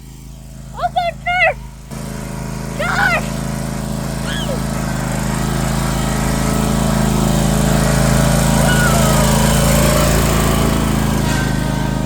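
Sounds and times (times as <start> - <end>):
riding lawn mower engine: 0.0 - 12.0.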